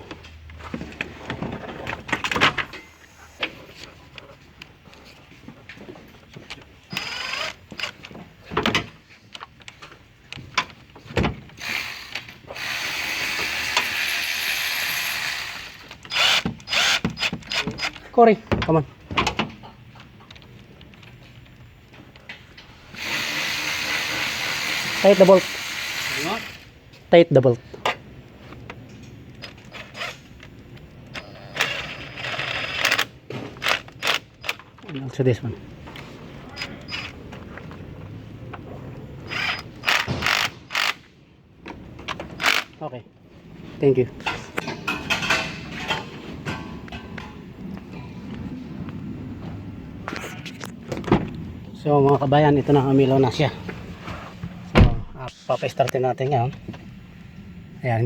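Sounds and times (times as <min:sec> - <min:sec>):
mechanical whirr: 0:06.9 - 0:08.0, 0:11.6 - 0:18.0, 0:29.4 - 0:34.6, 0:39.2 - 0:41.0.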